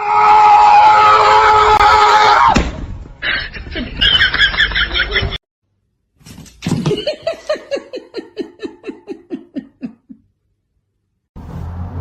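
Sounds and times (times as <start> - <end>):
person laughing: 3.2 - 5.4, 6.7 - 10.3.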